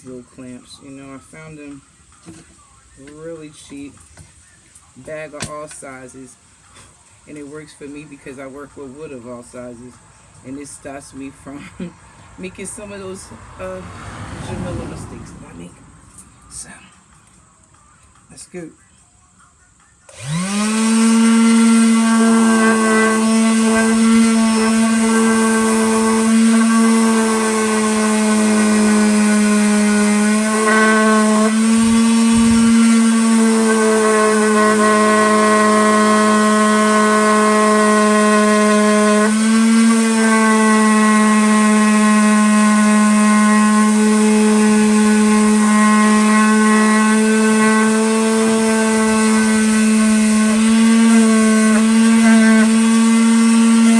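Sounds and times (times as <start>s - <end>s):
electric sander whining on wood: 20.1s - 53.9s.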